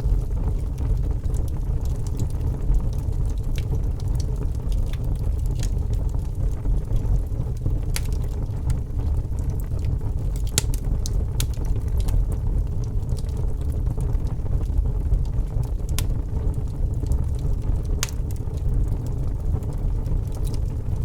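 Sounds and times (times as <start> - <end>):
fire flames roaring: 0.0 - 21.0
logs crackling and popping: 0.0 - 21.0.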